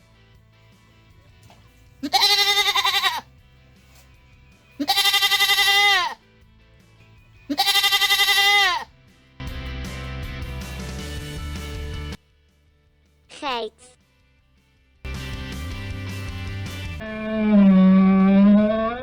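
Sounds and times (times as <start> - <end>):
goat bleating: 2.0 - 3.3, 4.8 - 6.2, 7.5 - 8.9.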